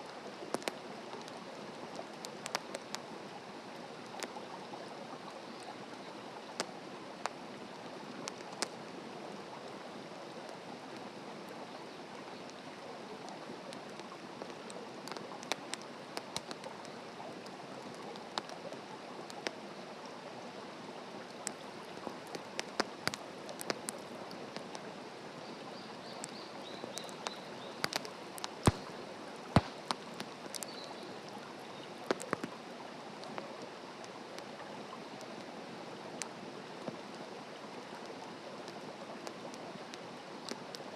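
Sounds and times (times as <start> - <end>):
fire crackles and pops: 0.2 - 3.4, 4.0 - 4.6, 6.4 - 8.8, 10.4 - 19.6, 21.2 - 37.2, 38.0 - 40.9.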